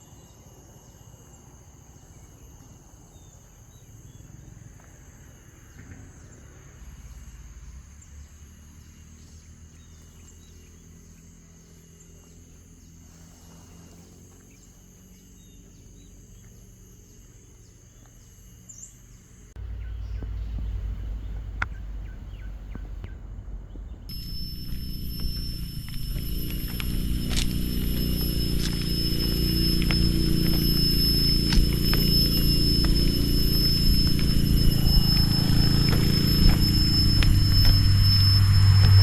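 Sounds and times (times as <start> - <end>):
insects trilling: 0.0 - 39.0
low rumbling noise: 19.6 - 39.0.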